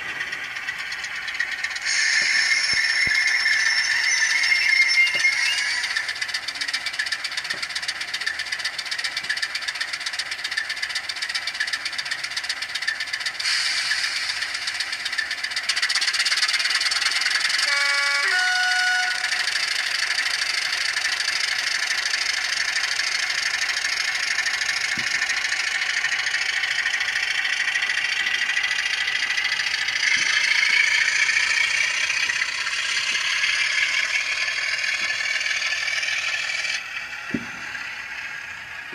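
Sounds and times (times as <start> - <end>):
diesel engine through small speaker: 0.0 - 38.9
two-note horn: 17.6 - 19.5.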